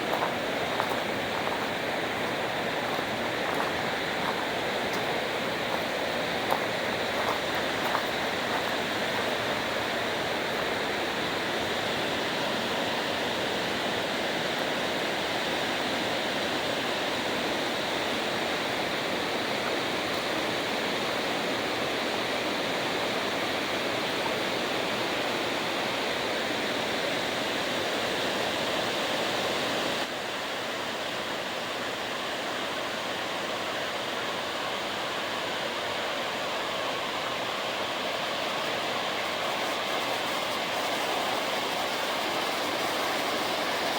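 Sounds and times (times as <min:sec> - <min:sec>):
waterfall rushing: 0:00.0 - 0:13.3, 0:36.5 - 0:43.9.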